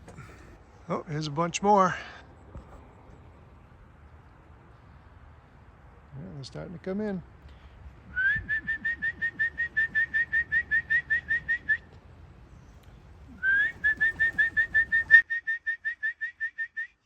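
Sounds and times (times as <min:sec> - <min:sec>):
man whistling chirps: 0:08.1 - 0:11.9, 0:13.3 - 0:17.0.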